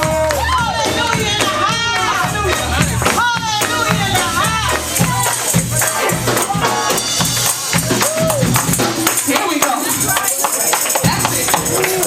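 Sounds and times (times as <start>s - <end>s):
voices singing and shouting: 0.0s - 8.6s
bass line: 0.0s - 9.3s
tambourines jingling: 2.2s - 12.0s.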